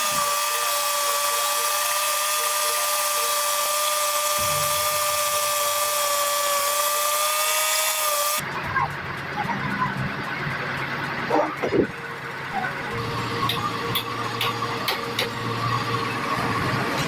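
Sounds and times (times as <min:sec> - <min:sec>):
sawmill saw whining: 0:00.0 - 0:08.4, 0:12.5 - 0:17.0.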